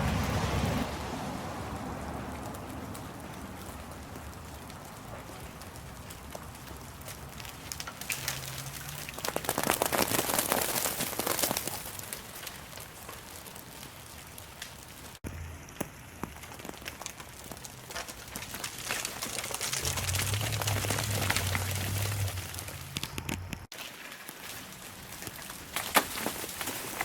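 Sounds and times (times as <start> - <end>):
rain pattering: 0.0 - 27.0
low hum: 19.7 - 23.7.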